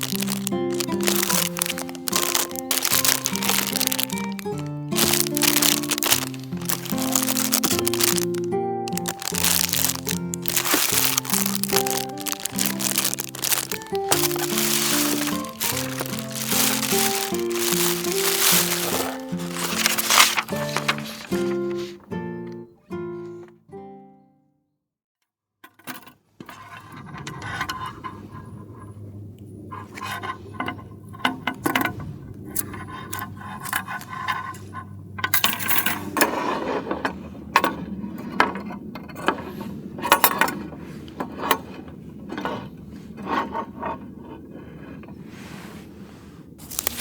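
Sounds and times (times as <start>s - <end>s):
metal items clinking and scraping: 0.0s - 21.9s, 46.6s - 47.0s.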